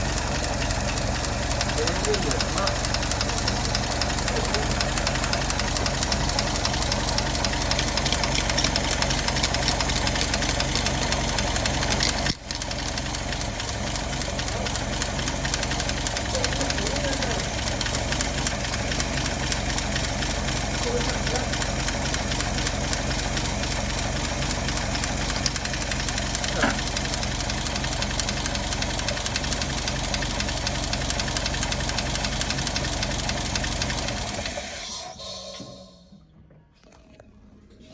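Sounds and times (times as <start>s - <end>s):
car engine idling with valve clatter: 0.0s - 36.1s.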